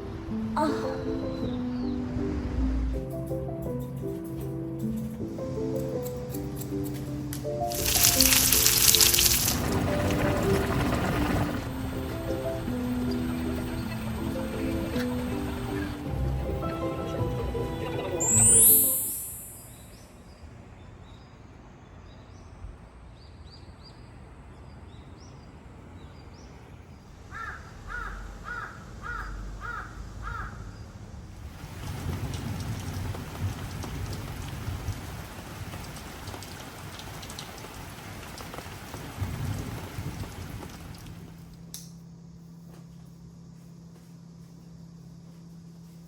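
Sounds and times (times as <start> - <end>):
rain falling: 0.0 - 17.7, 31.3 - 41.7.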